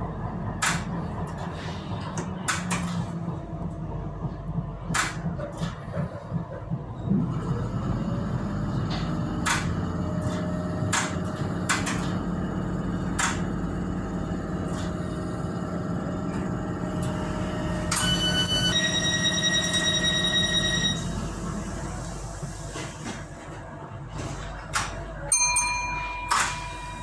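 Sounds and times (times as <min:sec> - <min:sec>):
train rumbling along track: 0:00.0 - 0:27.0
high steady tone: 0:25.3 - 0:27.0.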